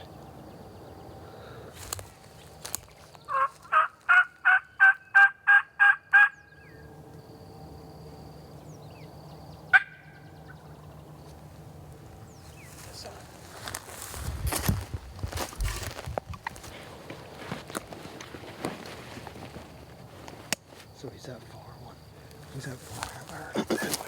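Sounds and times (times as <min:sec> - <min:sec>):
wild turkey yelps: 0:03.3 - 0:06.9, 0:09.7 - 0:10.7.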